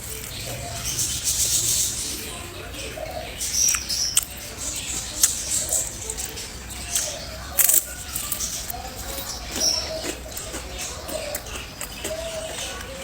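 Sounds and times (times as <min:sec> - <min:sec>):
crunching and chewing food: 0:00.0 - 0:13.0.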